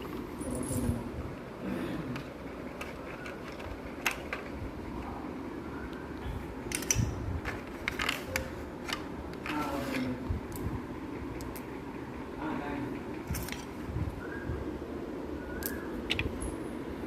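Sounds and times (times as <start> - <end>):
clicks and knocks handling toy: 2.2 - 4.6, 6.7 - 10.2.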